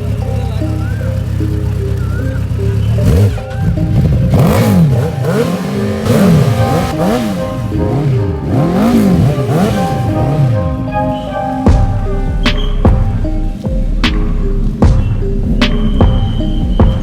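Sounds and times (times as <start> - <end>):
background music: 0.0 - 17.0
motorcycle engine revving: 0.0 - 17.0.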